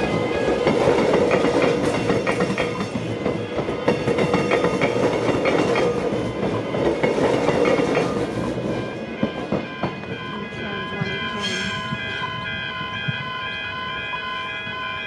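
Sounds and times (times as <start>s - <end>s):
train wheels clattering: 0.0s - 13.3s
train rolling rumble: 0.0s - 15.0s.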